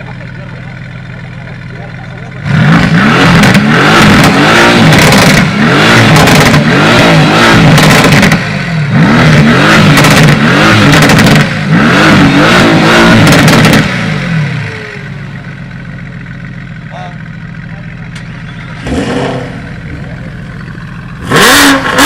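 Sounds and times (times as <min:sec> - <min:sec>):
car engines revving hard: 0:01.4 - 0:14.7, 0:18.7 - 0:22.0.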